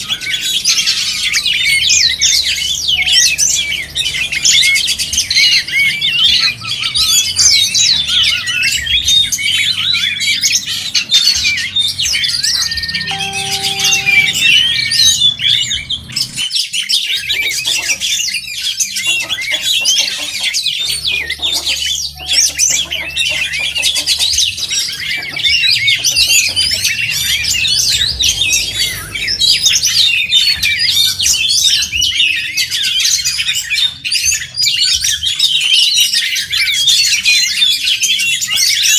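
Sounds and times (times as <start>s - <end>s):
birds singing: 0.0s - 38.9s.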